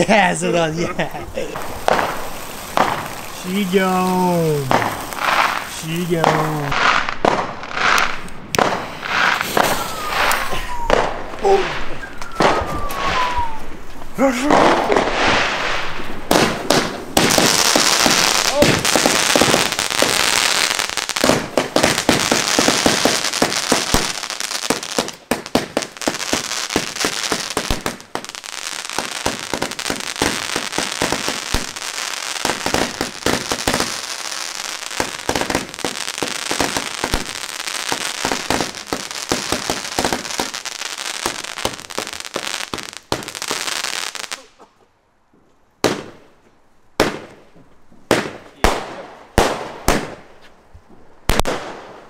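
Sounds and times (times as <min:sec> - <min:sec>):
firecrackers crackling: 0:00.0 - 0:44.7, 0:45.8 - 0:46.4, 0:47.0 - 0:50.6, 0:51.2 - 0:52.0
single firecracker bangs: 0:01.5 - 0:03.6, 0:04.6 - 0:13.6, 0:14.4 - 0:20.2.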